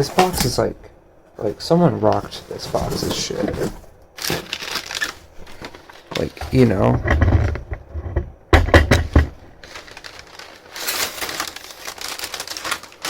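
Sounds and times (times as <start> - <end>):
packing paper rustling: 0.0 - 0.7, 1.4 - 6.9, 9.5 - 13.0.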